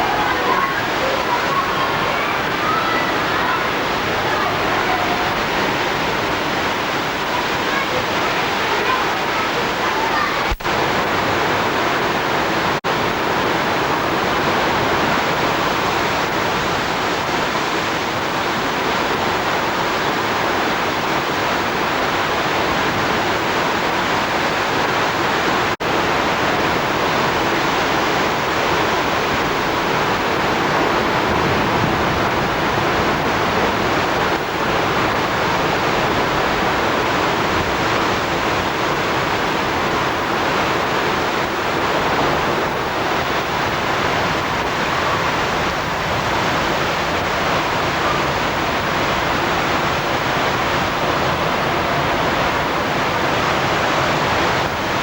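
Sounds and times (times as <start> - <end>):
loud rushing noise: 26.6 - 55.0.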